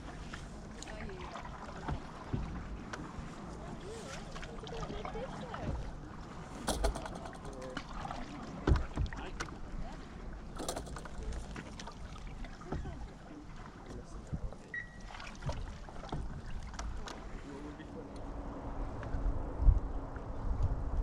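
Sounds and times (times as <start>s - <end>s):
water lapping at hull: 0.0s - 20.5s
knocks and clicks: 6.7s - 7.9s, 10.6s - 11.5s.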